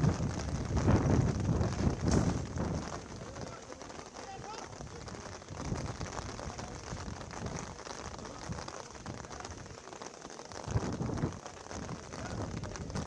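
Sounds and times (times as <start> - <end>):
low thuds: 0.0 - 3.1
heavy rain pattering: 0.0 - 13.0.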